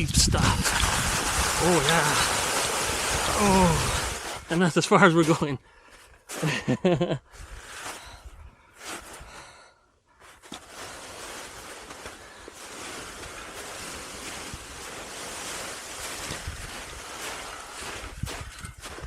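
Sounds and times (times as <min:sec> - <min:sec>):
wind rushing over microphone: 0:00.0 - 0:04.5.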